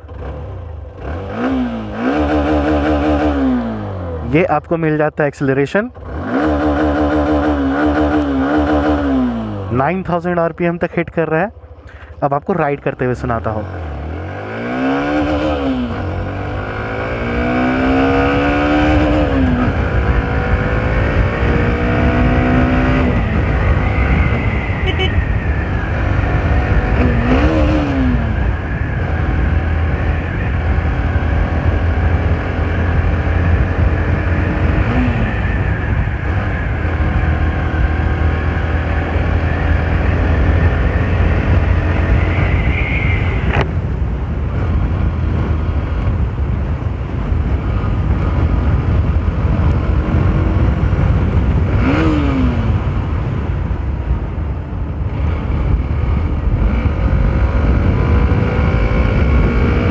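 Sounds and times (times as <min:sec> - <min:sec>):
motorcycle engine and exhaust: 0:00.0 - 0:59.9.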